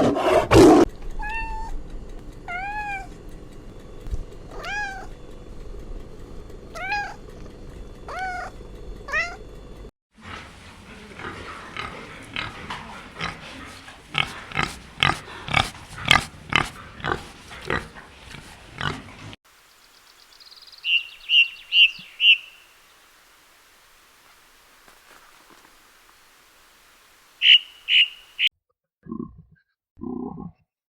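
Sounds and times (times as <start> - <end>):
cat meowing: 1.2 - 1.7, 4.5 - 5.1, 6.8 - 7.2, 8.1 - 8.5.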